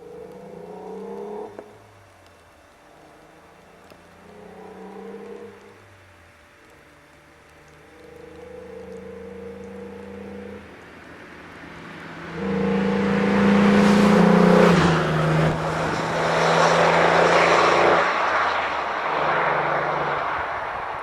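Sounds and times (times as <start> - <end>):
car driving past: 7.6 - 21.0.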